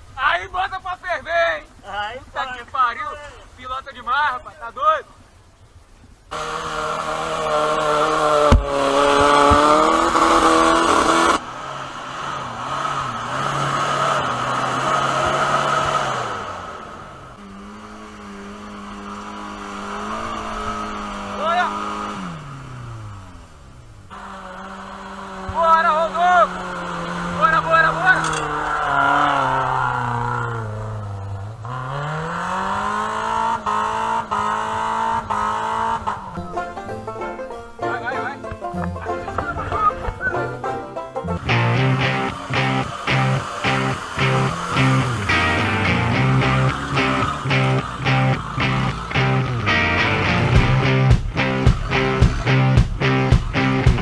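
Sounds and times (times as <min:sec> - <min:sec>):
off-road vehicle engine revving: 0:06.2 - 0:54.0
heavy thump: 0:08.4 - 0:09.7, 0:50.6 - 0:54.0
sharp knocks: 0:08.4 - 0:09.9.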